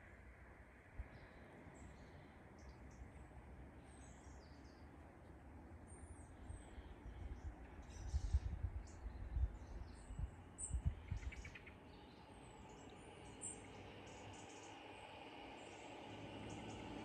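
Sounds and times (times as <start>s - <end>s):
wind buffeting microphone: 7.3s - 11.5s.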